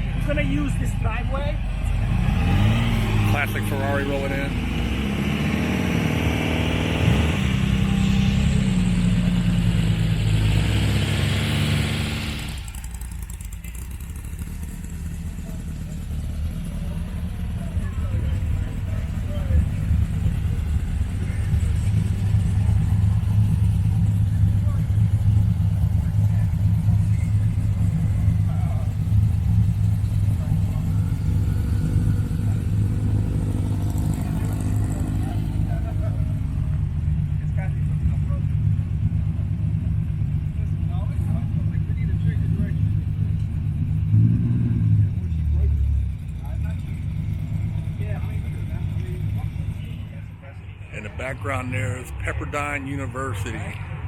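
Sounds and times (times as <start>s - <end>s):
car engine running: 0.0s - 54.0s
engine revving: 0.0s - 54.0s.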